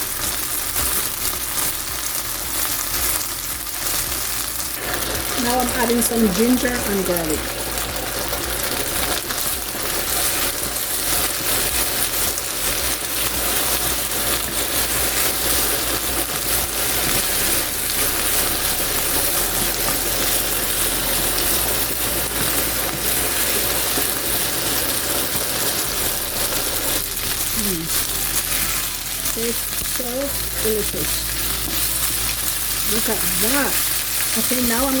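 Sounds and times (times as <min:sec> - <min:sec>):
food sizzling in a wok: 0:00.0 - 0:35.0.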